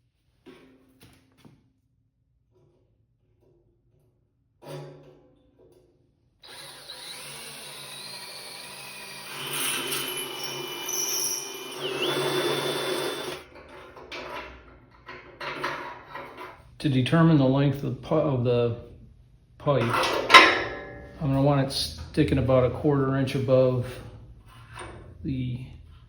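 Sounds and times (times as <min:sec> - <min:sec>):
drill bit squealing in steel: 0:06.4 - 0:13.4
electric drill motor running: 0:06.4 - 0:13.5.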